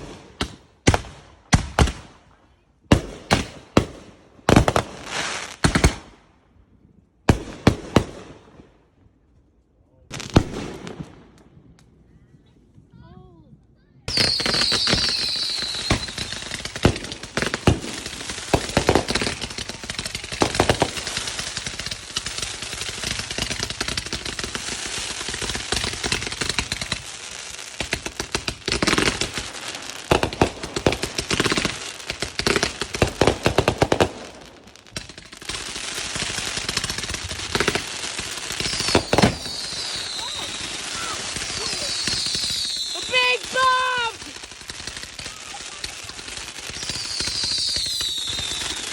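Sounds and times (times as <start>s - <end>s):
fireworks crackling and banging: 0.0s - 2.1s, 2.9s - 6.1s, 10.1s - 11.9s, 14.1s - 48.9s
firework whistle: 14.1s - 16.5s, 38.6s - 44.1s, 46.8s - 48.9s.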